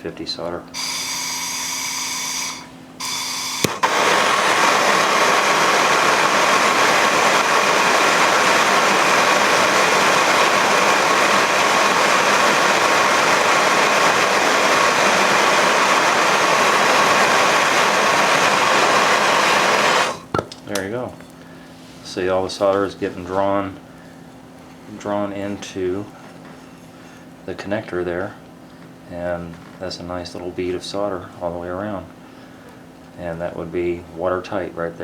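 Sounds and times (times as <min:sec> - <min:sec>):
gas torch hissing: 0:00.8 - 0:20.4
torch ignition click: 0:00.8 - 0:20.5.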